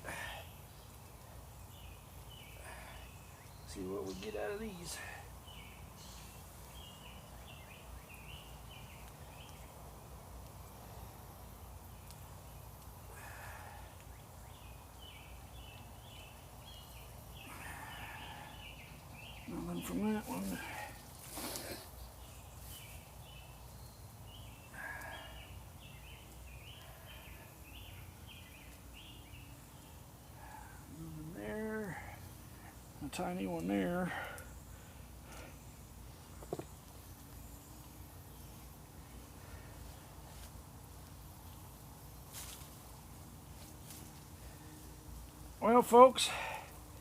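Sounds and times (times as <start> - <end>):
bird chirping: 0.2 - 9.9, 13.7 - 40.5.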